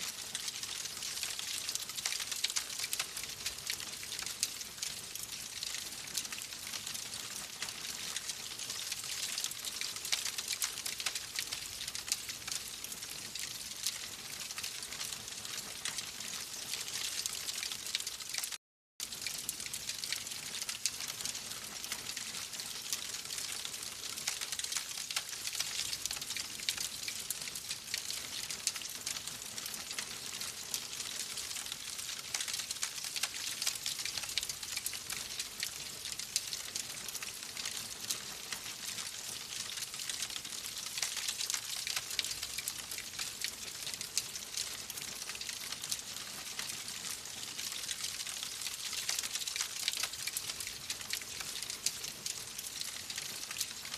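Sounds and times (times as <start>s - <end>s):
wood fire crackling: 0.1s - 53.9s.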